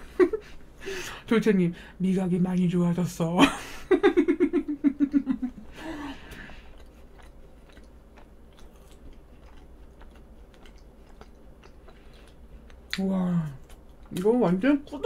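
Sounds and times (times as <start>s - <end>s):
person chewing cake: 5.6s - 14.6s.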